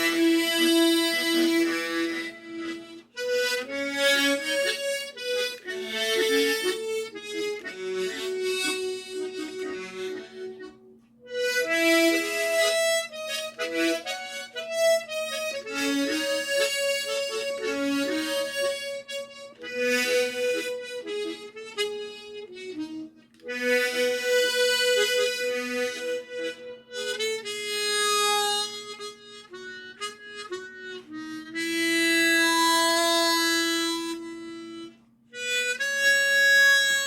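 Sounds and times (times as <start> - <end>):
harmonica playing slow melody: 0.0 - 37.0.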